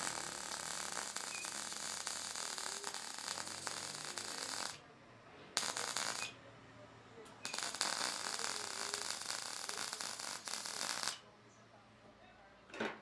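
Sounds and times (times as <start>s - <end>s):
welding arc crackling and hissing: 0.0s - 4.8s, 5.6s - 6.3s, 7.4s - 11.2s.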